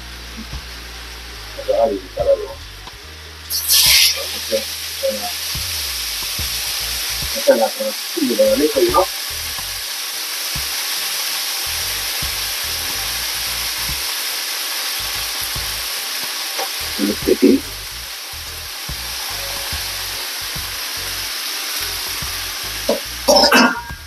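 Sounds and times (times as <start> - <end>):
greens sizzling in a hot pan: 0.0 - 2.0, 3.4 - 24.0
short warbling sounds: 3.5 - 5.4.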